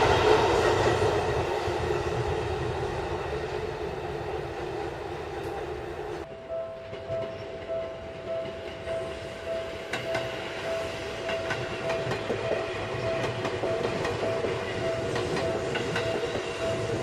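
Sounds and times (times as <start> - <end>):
electric train running past: 0.0 - 17.0
wheels clicking over rail joints: 9.8 - 17.0.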